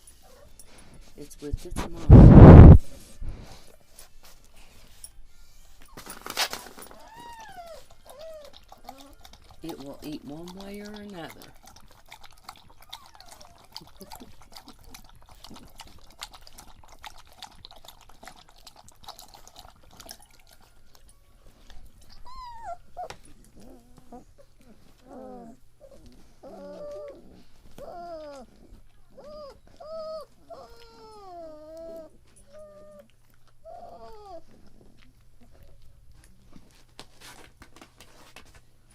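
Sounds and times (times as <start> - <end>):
puppies whimpering and squealing: 5.3 - 15.7, 19.3 - 35.6.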